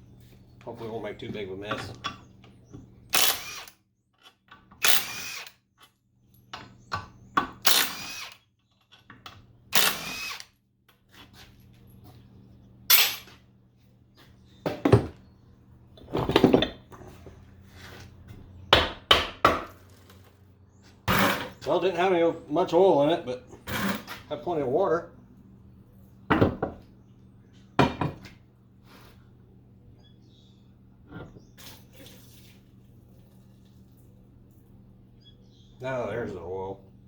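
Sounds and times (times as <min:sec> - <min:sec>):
power drill bursts: 0:03.1 - 0:03.8, 0:04.8 - 0:05.5, 0:07.6 - 0:08.4, 0:09.7 - 0:10.5.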